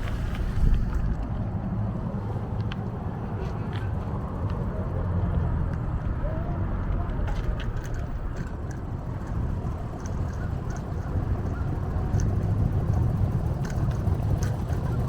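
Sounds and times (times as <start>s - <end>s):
wind on microphone: 0.0s - 1.7s
bicycle rolling noise: 0.0s - 15.0s
small clicks and rattles: 7.2s - 15.0s.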